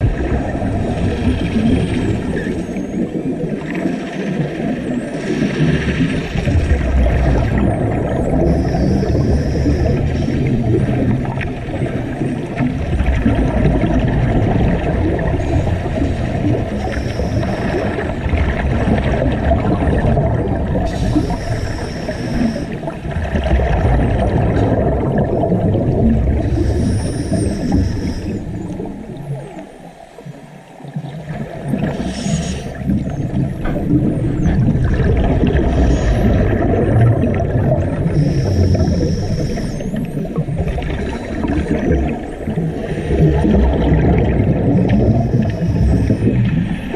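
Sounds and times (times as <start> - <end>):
rumbling gurgling water: 0.0 - 46.9
underwater bubbling and crackling: 0.0 - 46.9
faint high gliding whistles: 8.4 - 10.3, 26.6 - 30.9, 38.2 - 40.0.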